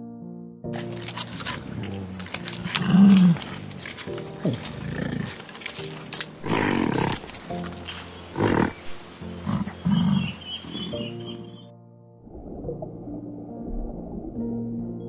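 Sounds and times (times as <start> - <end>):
background music: 0.0 - 15.0
animal calls: 0.8 - 11.7.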